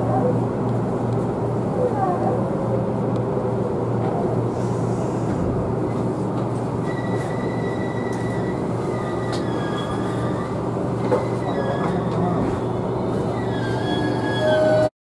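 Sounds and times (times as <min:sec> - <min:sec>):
train wheels rumbling on rail: 0:00.0 - 0:14.9
high wheel squeal: 0:06.8 - 0:14.9.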